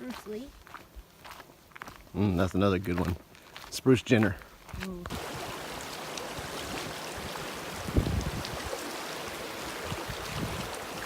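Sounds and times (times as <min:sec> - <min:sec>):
river water rushing: 0:05.1 - 0:11.0.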